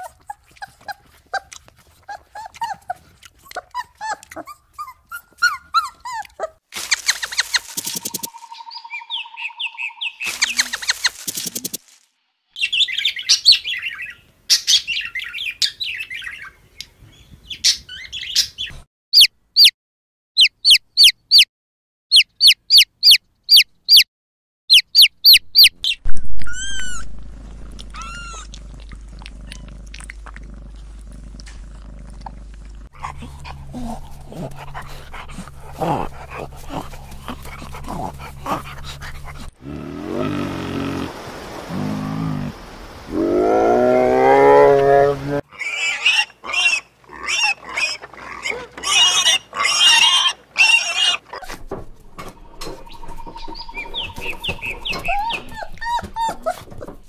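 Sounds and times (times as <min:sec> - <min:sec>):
lower animal sounds: 0:26.5 - 0:41.1, 0:41.7 - 0:51.2
steady low hum: 0:27.1 - 0:39.6.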